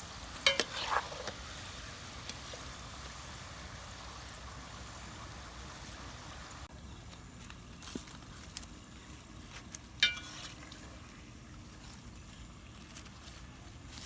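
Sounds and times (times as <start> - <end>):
oil sizzling with frying potatoes: 0.0 - 14.0
utensil clinking against pan: 0.5 - 1.0, 10.0 - 10.6.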